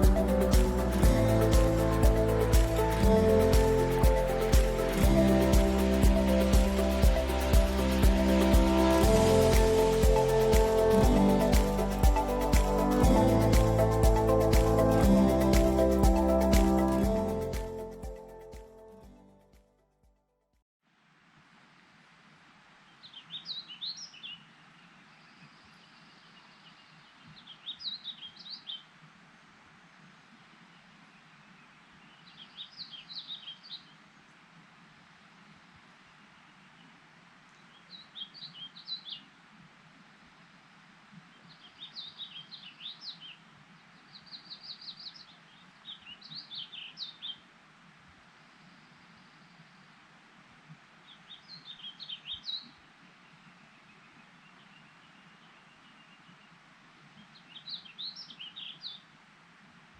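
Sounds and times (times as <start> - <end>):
background hiss: 0.0 - 18.7, 20.9 - 59.9
outdoor background rush: 0.0 - 18.8.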